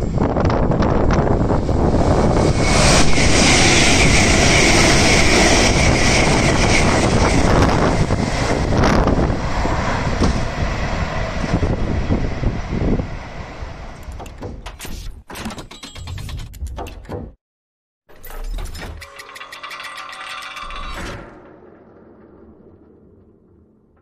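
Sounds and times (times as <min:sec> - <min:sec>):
high train whine: 0:00.0 - 0:14.4
wind buffeting microphone: 0:00.0 - 0:14.6.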